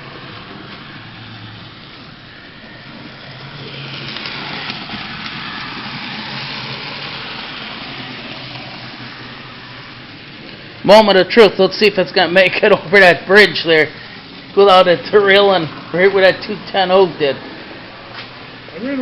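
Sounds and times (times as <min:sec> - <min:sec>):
model train motor whirring: 0:00.0 - 0:11.1, 0:12.8 - 0:15.9.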